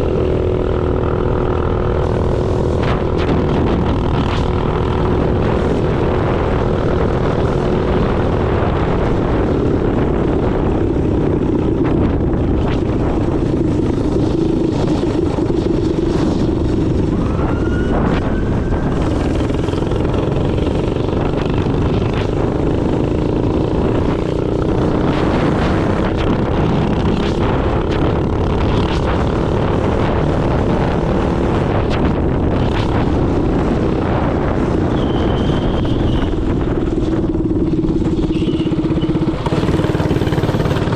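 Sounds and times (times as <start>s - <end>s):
heavy low rushing noise: 0.0s - 34.7s
minibike engine running: 18.9s - 30.5s, 35.0s - 40.9s.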